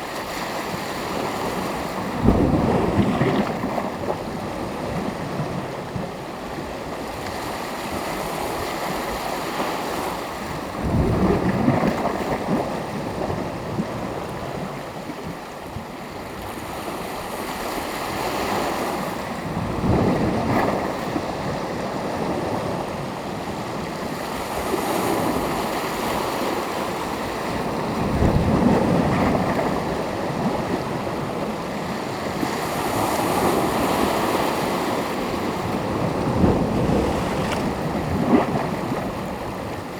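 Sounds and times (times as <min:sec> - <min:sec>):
waves breaking: 0:23.6 - 0:39.9
small waves washing in: 0:23.7 - 0:39.9.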